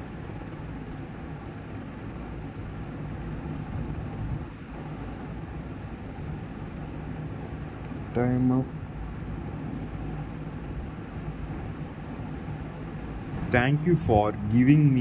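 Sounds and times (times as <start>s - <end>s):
room noise hum and hiss: 0.0s - 15.0s.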